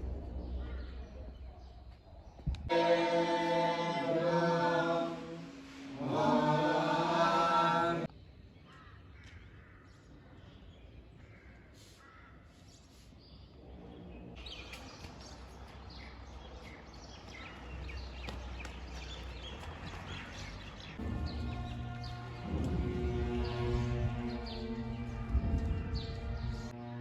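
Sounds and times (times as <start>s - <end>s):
birds chirping and calling: 0.0s - 2.6s, 8.5s - 26.7s
low outdoor rumble: 0.0s - 8.1s, 13.5s - 27.0s.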